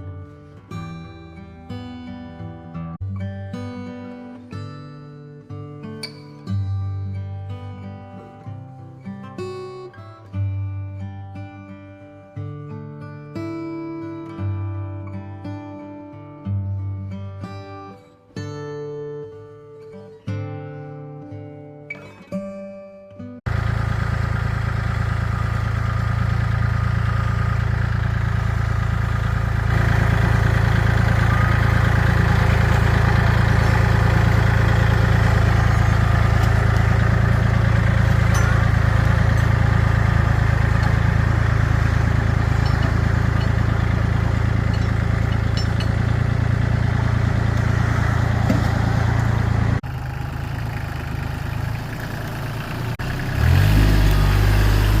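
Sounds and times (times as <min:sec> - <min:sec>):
tractor engine running: 0:23.5 - 0:55.0.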